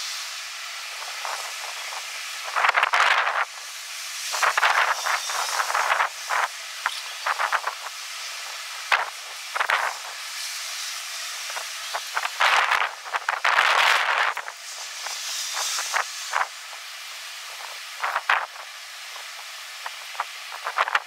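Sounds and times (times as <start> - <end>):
strong gusty wind: 11.5 - 16.6.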